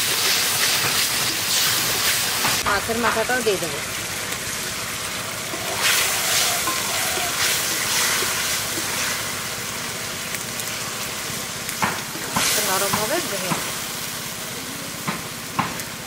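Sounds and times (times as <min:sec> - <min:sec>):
curry sizzling in a metal wok: 0:00.0 - 0:16.0
stirring with a wooden spatula: 0:05.5 - 0:09.4.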